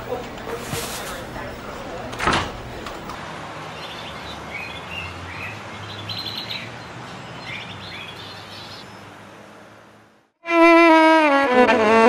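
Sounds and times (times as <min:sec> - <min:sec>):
small birds chirping: 0:03.7 - 0:09.1.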